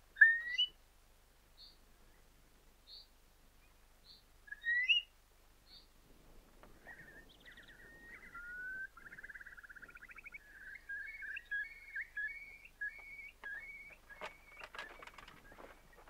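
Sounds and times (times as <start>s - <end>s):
bird whistling and trilling: 0.2s - 0.7s, 4.5s - 5.1s, 6.8s - 16.0s.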